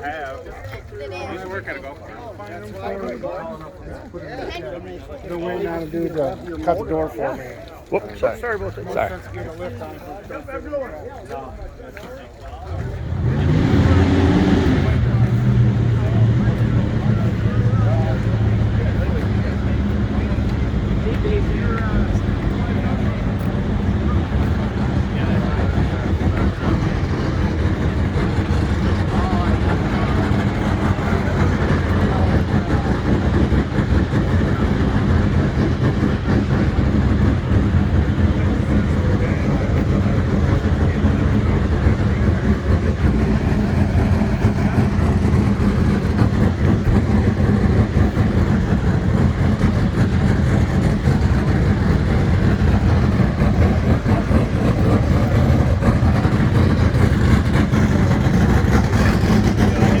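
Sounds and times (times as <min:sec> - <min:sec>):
car engine idling: 0:12.4 - 1:00.0.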